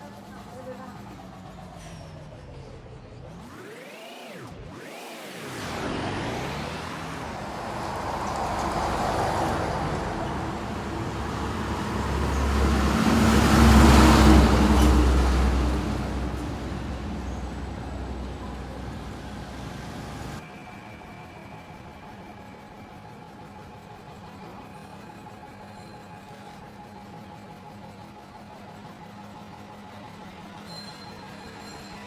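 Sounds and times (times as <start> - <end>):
motor vehicle passing by: 1.7 - 20.4.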